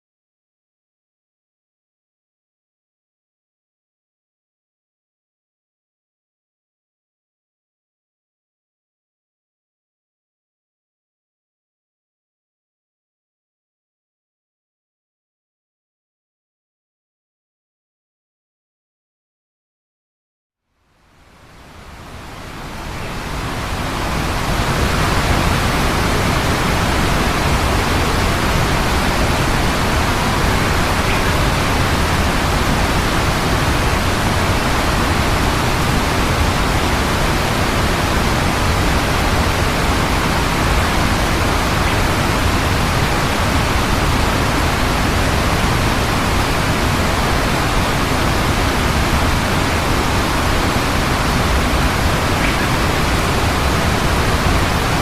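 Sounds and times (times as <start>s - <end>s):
steady loud rushing noise: 21.0s - 55.0s.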